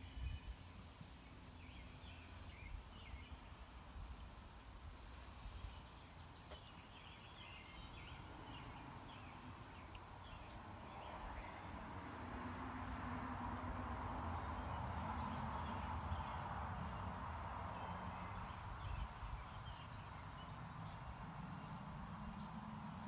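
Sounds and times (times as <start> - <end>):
faint chirping calls: 5.1 - 11.8, 17.8 - 22.7.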